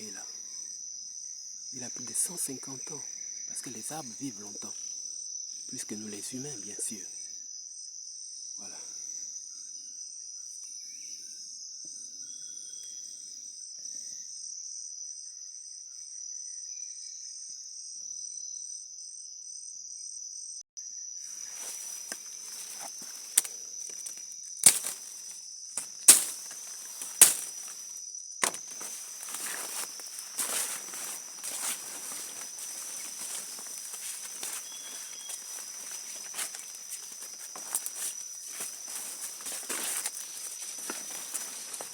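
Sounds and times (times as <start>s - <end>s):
insect chorus: 0.0s - 41.9s
footsteps rustling through leaf litter: 21.4s - 41.9s
sharp cracks: 27.0s - 27.5s.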